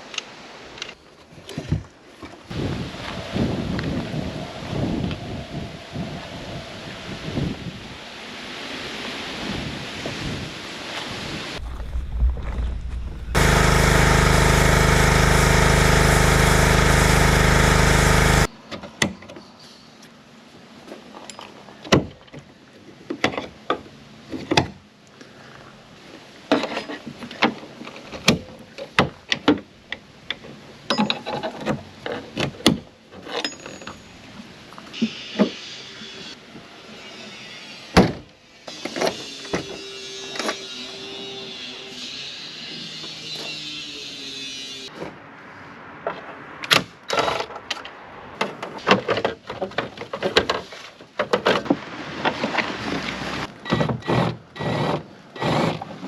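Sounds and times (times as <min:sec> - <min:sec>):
loud steady noise: 0:12.1 - 0:18.5.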